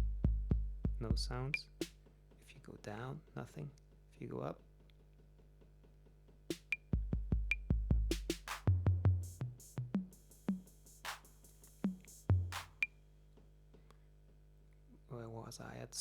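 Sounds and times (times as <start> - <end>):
drum machine hits: 0.0 - 2.0, 6.5 - 12.9.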